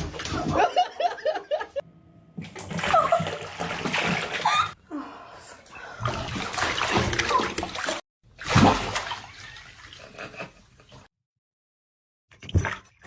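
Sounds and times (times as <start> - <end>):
water splashing and sloshing: 2.4 - 11.1, 12.3 - 13.0.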